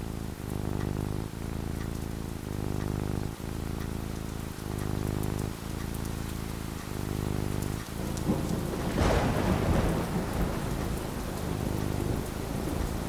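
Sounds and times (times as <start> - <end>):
steady rain: 0.0 - 13.0
thunderclap rumbling: 7.6 - 13.0.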